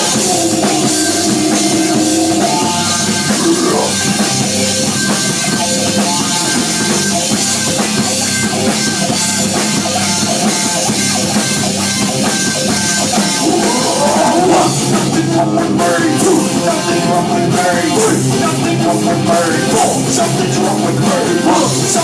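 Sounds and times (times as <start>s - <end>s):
drum kit: 0.0s - 22.0s
electric guitar: 0.0s - 22.0s.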